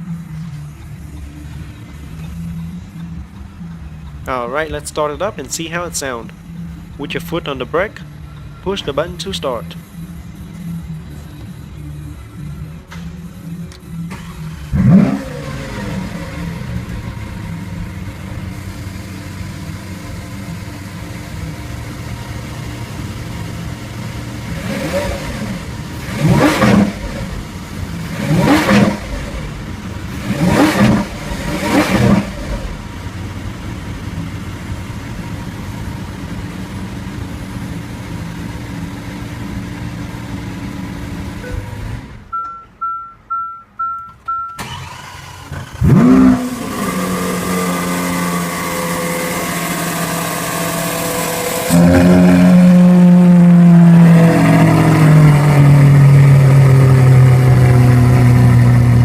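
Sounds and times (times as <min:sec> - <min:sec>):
car engine revving and idling: 0:00.0 - 0:59.0
chime beeping: 0:42.3 - 0:44.6.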